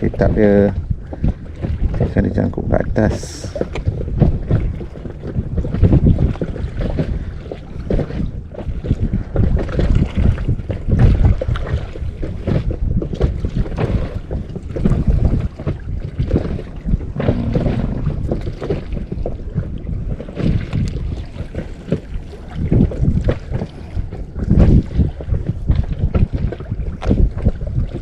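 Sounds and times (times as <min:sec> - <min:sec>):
water against boat hull: 0:00.0 - 0:28.0
wind buffeting microphone: 0:00.0 - 0:28.0
low rumble: 0:14.4 - 0:27.9.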